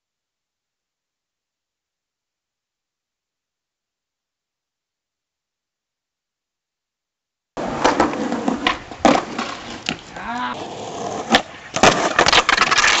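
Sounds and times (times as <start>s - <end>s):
skateboard clacking on ground: 7.6s - 13.0s
skateboard rolling: 7.6s - 13.0s.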